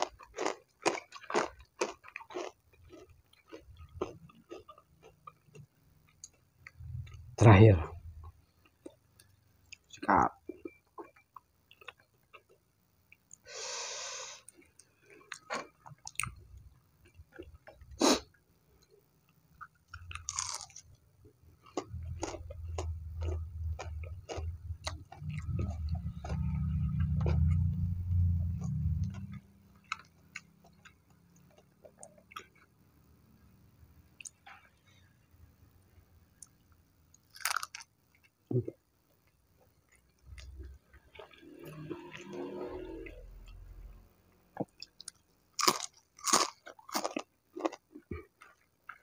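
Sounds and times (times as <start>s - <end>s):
chewing crispy fried food: 0.0s - 7.4s, 8.2s - 13.7s, 14.4s - 32.9s, 36.3s - 49.0s
low rumbling: 21.9s - 29.5s.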